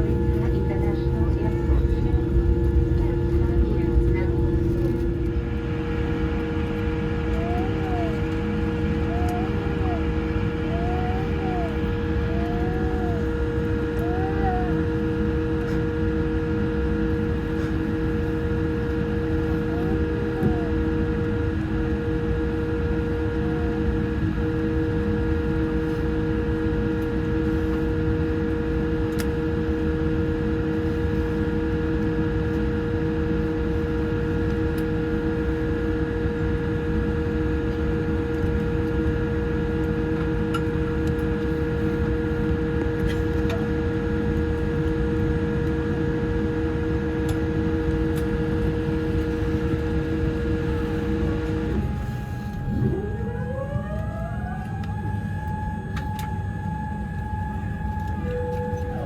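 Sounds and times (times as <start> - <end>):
rising whine: 0.0 - 16.1, 46.8 - 59.0
airliner cabin rumble: 0.0 - 59.0
steady hums: 0.0 - 59.0.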